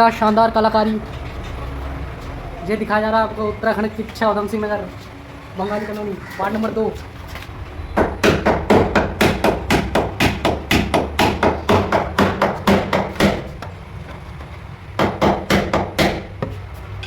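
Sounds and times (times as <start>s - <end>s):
hammer driving nails into plywood: 8.2s - 13.6s.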